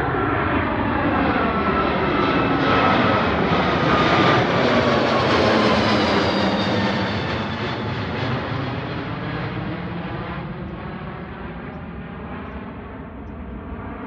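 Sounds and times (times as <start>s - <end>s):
airplane engines roaring: 0.0s - 14.0s
faint engine whine: 0.0s - 14.0s.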